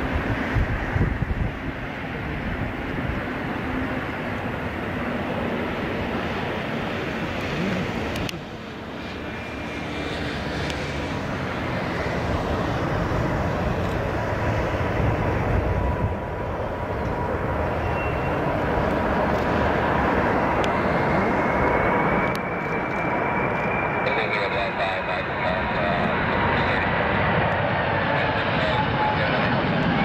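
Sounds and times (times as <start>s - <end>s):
jet engines roaring: 0.0s - 30.0s
steady engine whine: 0.0s - 30.0s
rising high whine: 17.0s - 27.7s.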